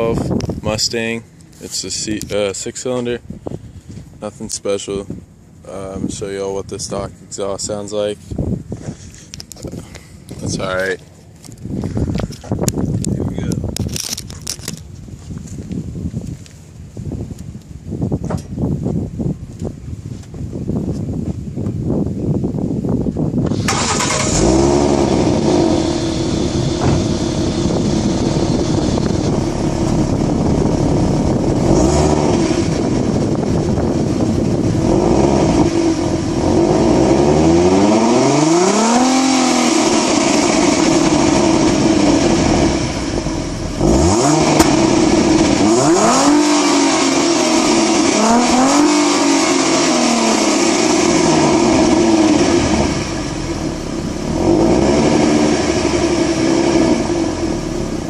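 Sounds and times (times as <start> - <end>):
car engine idling and revving: 0.0 - 58.0.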